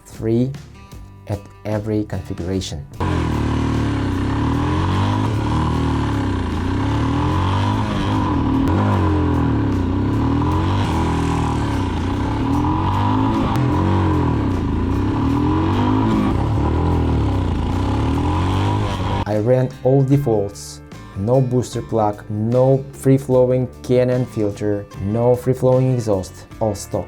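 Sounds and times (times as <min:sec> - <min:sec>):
motorcycle engine running: 0:03.0 - 0:19.3.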